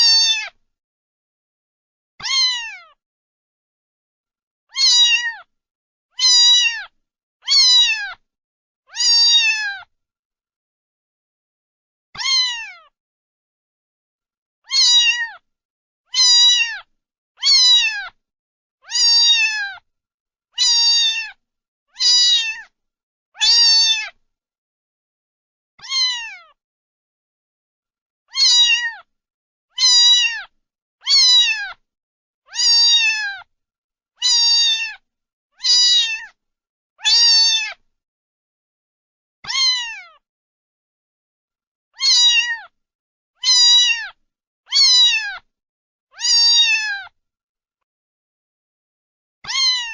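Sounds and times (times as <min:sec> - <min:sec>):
cat meowing: 0:00.0 - 0:00.6, 0:02.2 - 0:03.0, 0:04.7 - 0:05.5, 0:06.2 - 0:08.2, 0:08.9 - 0:09.9, 0:12.2 - 0:13.0, 0:14.6 - 0:15.4, 0:16.1 - 0:18.2, 0:18.8 - 0:19.8, 0:20.6 - 0:21.4, 0:22.0 - 0:22.7, 0:23.4 - 0:24.2, 0:25.8 - 0:26.6, 0:28.3 - 0:29.1, 0:29.7 - 0:31.8, 0:32.5 - 0:33.5, 0:34.2 - 0:35.0, 0:35.6 - 0:36.4, 0:37.0 - 0:37.8, 0:39.4 - 0:40.2, 0:42.0 - 0:42.8, 0:43.4 - 0:45.5, 0:46.1 - 0:47.2, 0:49.4 - 0:49.9.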